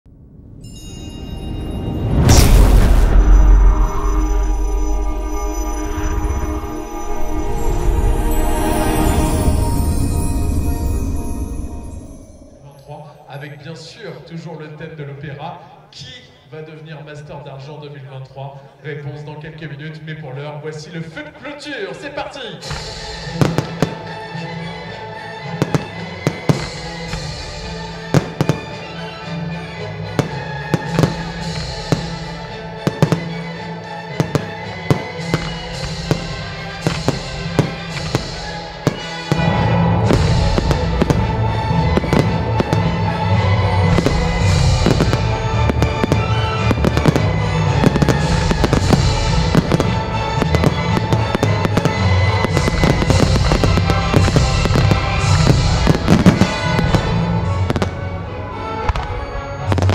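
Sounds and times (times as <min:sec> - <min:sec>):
music soundtrack: 0:00.1 - 0:14.9, 0:21.3 - 0:59.9
fireworks bangs and crackles: 0:00.6 - 0:07.7, 0:22.6 - 0:59.9.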